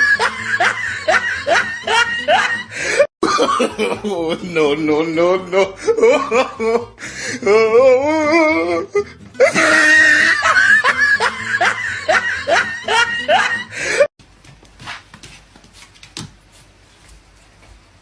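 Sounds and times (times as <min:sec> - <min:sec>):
music: 0:00.0 - 0:03.0, 0:04.2 - 0:14.0
person laughing loudly: 0:00.0 - 0:14.1.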